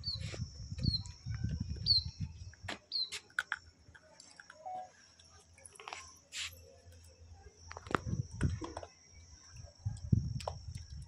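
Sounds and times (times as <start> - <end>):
small bird chirping: 0.0 - 3.3.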